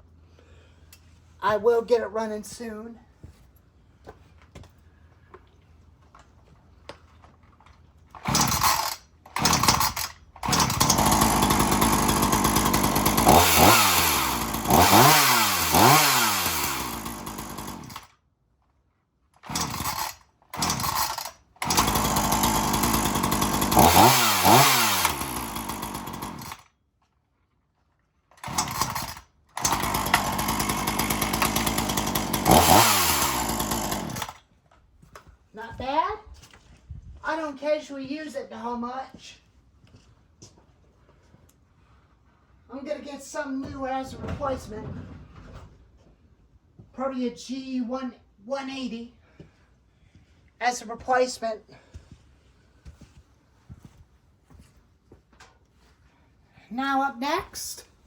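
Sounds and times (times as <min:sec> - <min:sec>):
chainsaw revving: 0:08.2 - 0:18.1, 0:19.4 - 0:26.6, 0:28.4 - 0:34.4.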